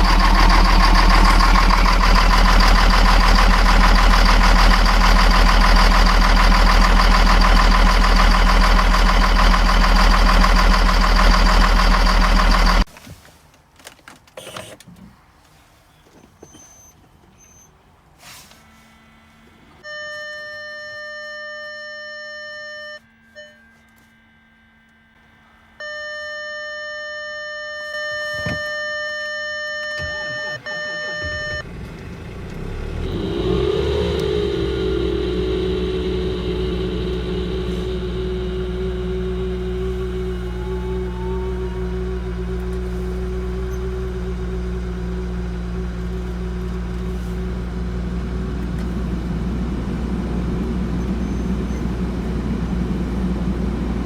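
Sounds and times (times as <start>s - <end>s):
engine running and cutting off: 0.0s - 12.9s, 30.0s - 54.0s
diesel engine starting and idling: 0.0s - 13.0s, 14.4s - 20.1s, 27.9s - 54.0s
electronic warning tone: 19.8s - 24.1s, 25.8s - 31.6s, 32.9s - 47.4s.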